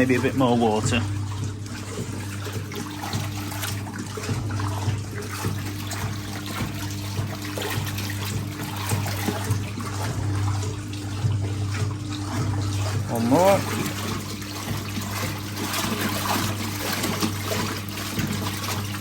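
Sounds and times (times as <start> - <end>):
water sloshing and churning: 0.0 - 19.0
electric motor hum: 5.8 - 19.0.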